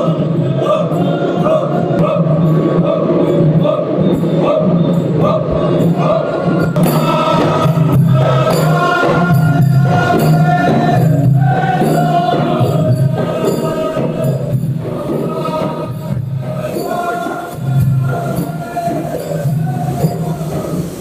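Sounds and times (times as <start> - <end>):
group of voices singing: 0.0 - 21.0.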